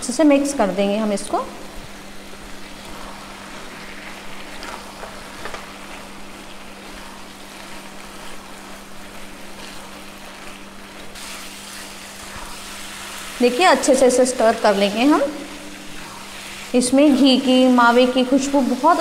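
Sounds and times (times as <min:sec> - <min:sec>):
steady low hum: 0:00.0 - 0:19.0
food sizzling in a pan: 0:00.2 - 0:19.0
spatula scraping a pan: 0:02.8 - 0:13.4.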